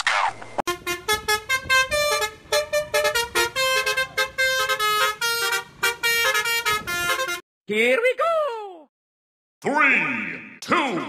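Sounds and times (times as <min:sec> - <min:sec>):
horn toots playing tune: 0:00.7 - 0:07.4.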